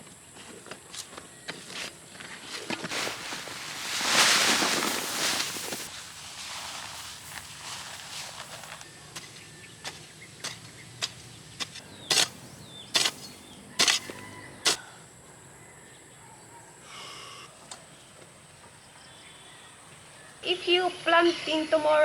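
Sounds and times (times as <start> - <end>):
regular sharp knocks: 9.1 - 14.8.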